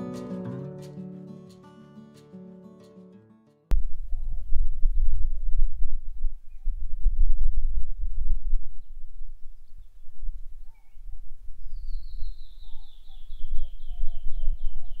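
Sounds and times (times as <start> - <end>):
wind rumble on microphone: 3.7 - 15.0
wild birds singing: 9.6 - 15.0.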